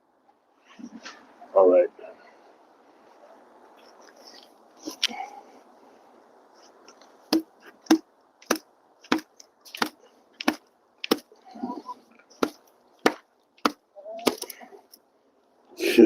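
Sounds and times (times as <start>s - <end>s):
sharp chopping strikes: 7.3s - 11.3s, 12.4s - 14.5s.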